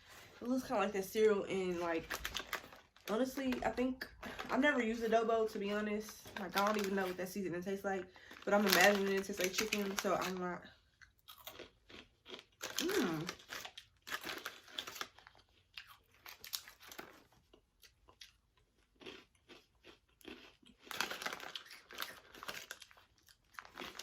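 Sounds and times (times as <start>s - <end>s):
person chewing crunchy snack: 11.0s - 24.0s.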